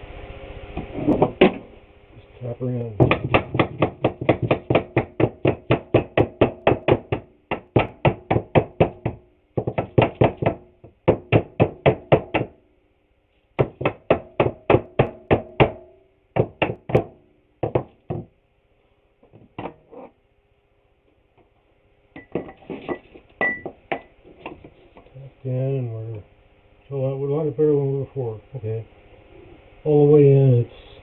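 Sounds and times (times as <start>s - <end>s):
hammer tapping on wooden board: 3.0s - 12.6s, 13.6s - 18.3s, 22.2s - 24.7s.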